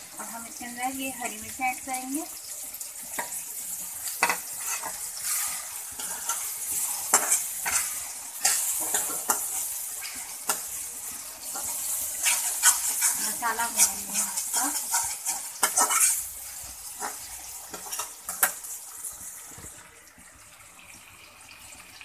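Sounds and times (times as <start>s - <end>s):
masala sizzling in a wok: 0.0s - 22.0s
spoon scraping a pan: 3.0s - 18.7s.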